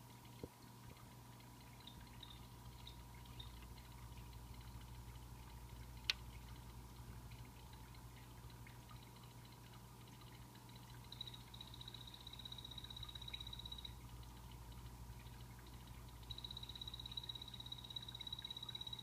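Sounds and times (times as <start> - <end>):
small waterfall trickling: 0.0 - 19.0
frogs chirping: 1.8 - 3.6, 10.7 - 14.8, 15.7 - 19.0.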